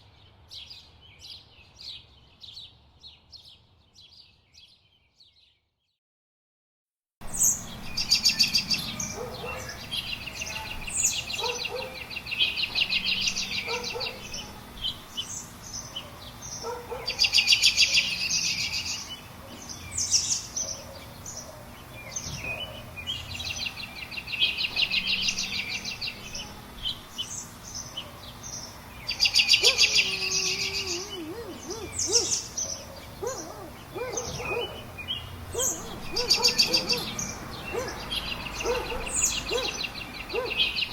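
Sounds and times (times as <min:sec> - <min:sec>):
birds chirping and calling: 0:07.2 - 0:40.9
bird trilling fast and high: 0:29.1 - 0:34.9, 0:35.6 - 0:40.9.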